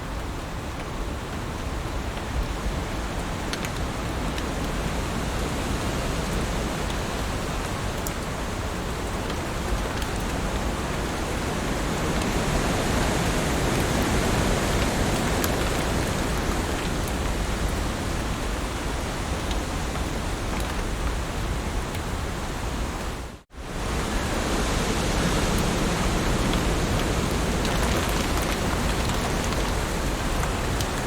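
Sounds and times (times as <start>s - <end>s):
heavy rain falling: 0.0s - 31.0s
raindrop ticks: 2.1s - 4.9s, 6.3s - 11.1s, 13.6s - 21.2s, 25.5s - 31.0s.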